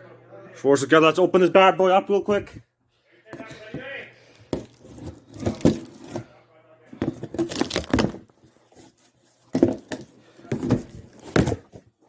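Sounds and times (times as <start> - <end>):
cardboard box packaging handled: 3.4 - 6.3, 7.0 - 12.0.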